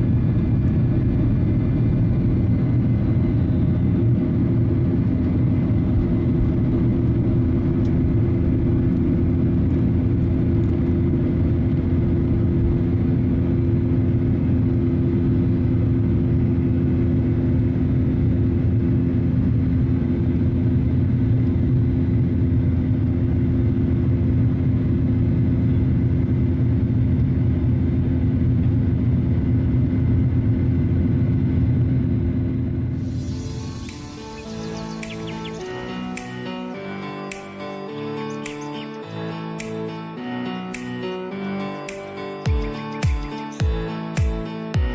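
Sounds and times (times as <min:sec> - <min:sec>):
steady hum tones: 0:00.0 - 0:14.6, 0:32.7 - 0:44.9
jet engine cabin drone: 0:00.0 - 0:44.9.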